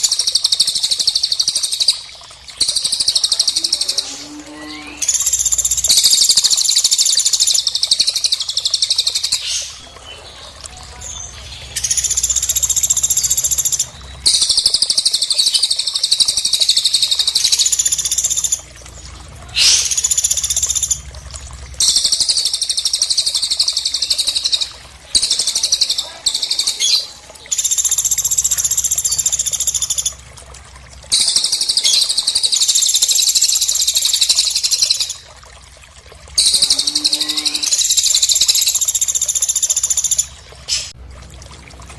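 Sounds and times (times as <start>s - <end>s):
high-pitched songbird trills: 36.4s - 38.8s.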